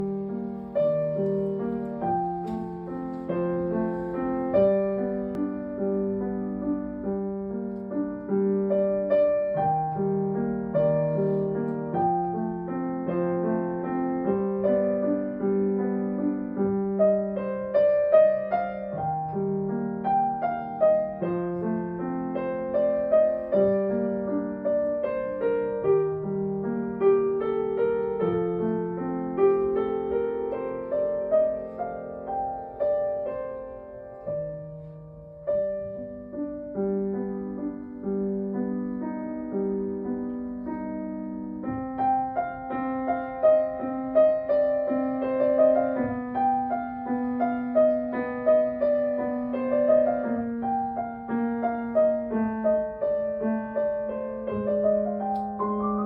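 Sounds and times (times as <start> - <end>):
solo piano: 0.0 - 56.0.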